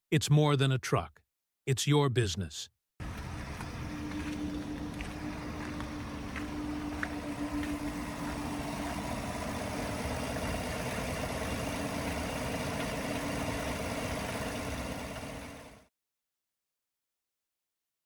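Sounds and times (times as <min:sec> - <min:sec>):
pickup engine idling: 0:03.0 - 0:15.8.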